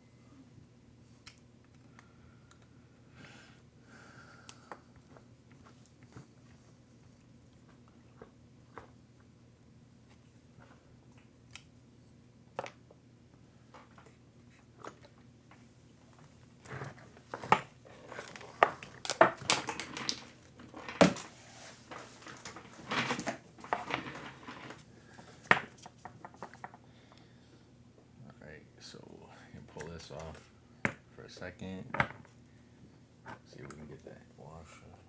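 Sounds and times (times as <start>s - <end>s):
hand tools clicking and clattering: 16.7s - 24.8s.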